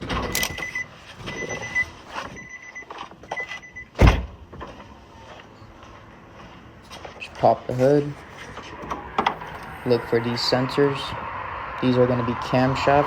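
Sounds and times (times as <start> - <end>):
car warning chime beeping: 0.4 - 4.0
car door shutting thump: 4.0 - 4.4.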